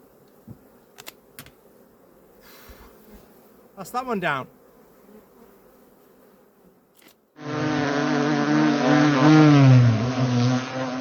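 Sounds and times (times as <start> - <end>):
bee buzzing: 0.0 - 11.0.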